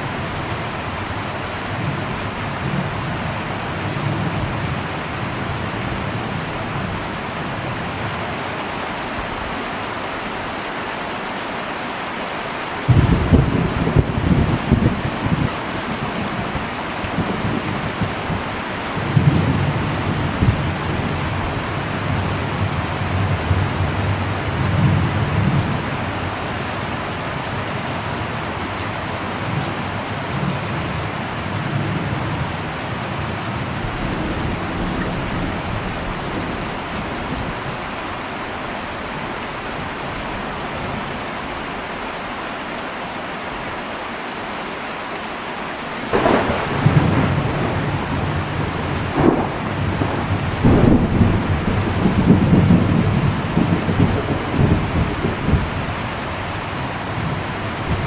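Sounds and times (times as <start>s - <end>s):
heavy rain on a metal roof: 0.0s - 58.0s
low rumble of thunder: 12.8s - 38.2s, 46.0s - 58.0s.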